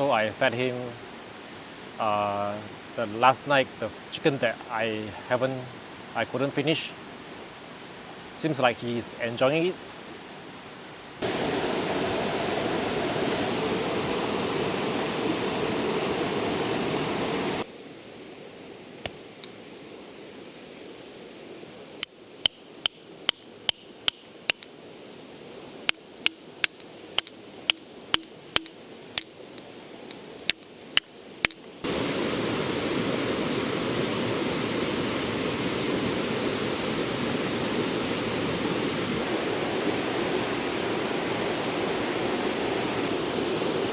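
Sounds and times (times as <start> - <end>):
river water rushing: 9.9 - 43.9
sharp clicks: 25.9 - 30.7.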